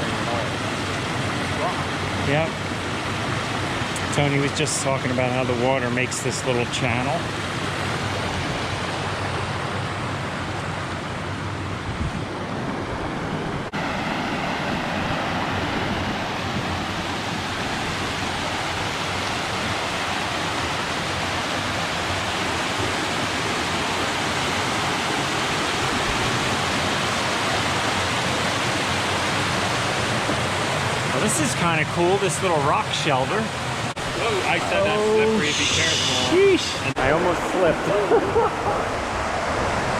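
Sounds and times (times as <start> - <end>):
creek rushing over rock: 13.7 - 39.9.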